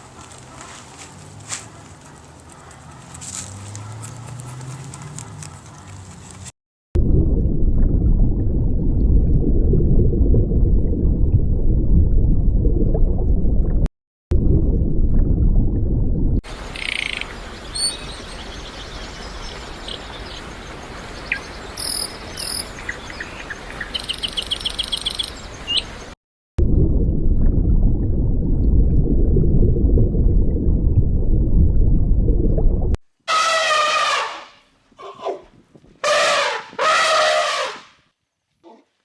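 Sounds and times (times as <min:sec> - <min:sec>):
dense low rumble: 0:07.0 - 0:16.8, 0:26.6 - 0:33.0
high chirping calls: 0:16.5 - 0:26.2.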